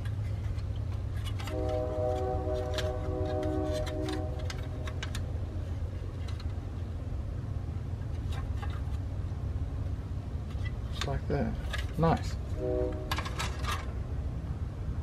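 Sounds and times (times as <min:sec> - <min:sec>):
passing train rumble: 0:00.0 - 0:15.0
train horn chord: 0:01.4 - 0:05.0, 0:12.6 - 0:13.5
plastic parts clicking: 0:02.6 - 0:05.3.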